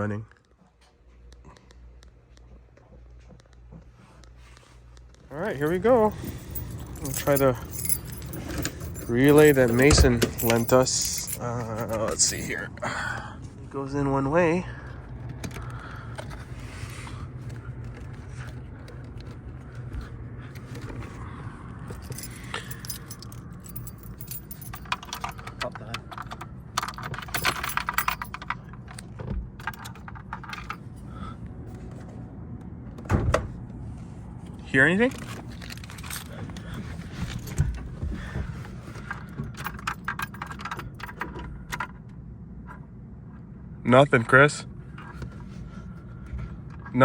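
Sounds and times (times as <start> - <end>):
steady low hum: 0.0 - 47.0
low background rumble: 1.4 - 47.0
keys jangling: 5.3 - 13.0, 21.8 - 31.1, 35.1 - 38.4, 39.0 - 42.0.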